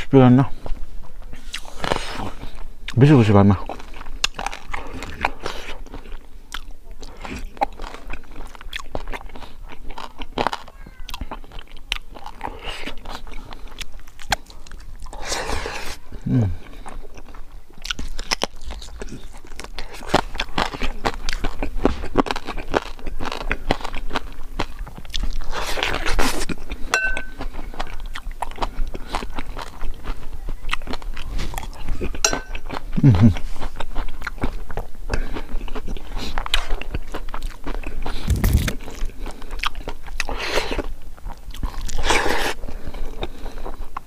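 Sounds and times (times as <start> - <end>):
crunchy food chewing: 0.5 - 44.0
spoon clinking on ceramic bowl: 27.0 - 27.4, 32.2 - 32.6.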